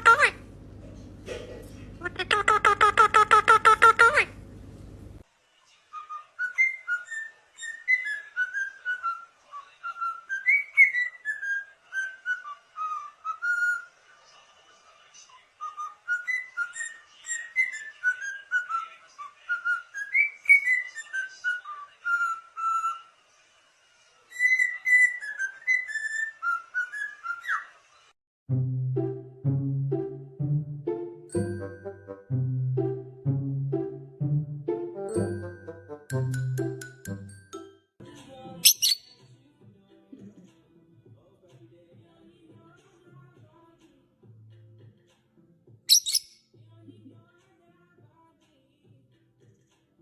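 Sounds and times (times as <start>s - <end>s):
parrot whistling a tune: 6.0s - 13.9s, 15.6s - 23.1s, 24.3s - 27.7s, 45.9s - 46.4s.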